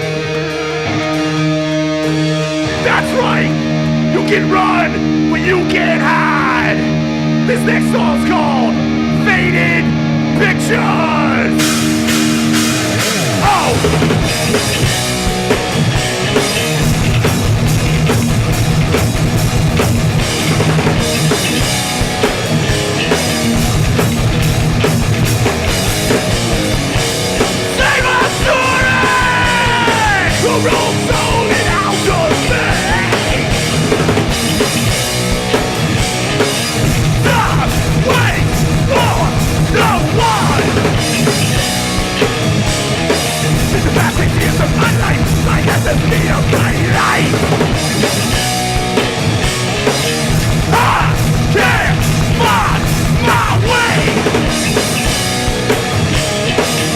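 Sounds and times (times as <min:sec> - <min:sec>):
drums: 0:00.0 - 0:56.9
guitars: 0:00.0 - 0:56.9
punk band playing live: 0:00.0 - 0:56.9
shouted vocals: 0:02.6 - 0:11.6, 0:13.3 - 0:14.3, 0:27.6 - 0:34.1, 0:37.1 - 0:41.2, 0:43.6 - 0:48.0, 0:50.6 - 0:54.5.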